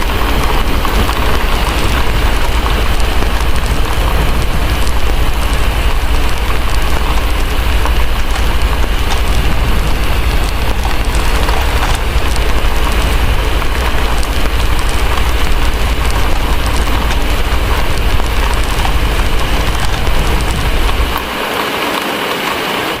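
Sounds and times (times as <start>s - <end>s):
deep constant rumble: 0.0s - 21.9s
fire crackling: 0.0s - 23.0s
heavy rain: 0.0s - 23.0s.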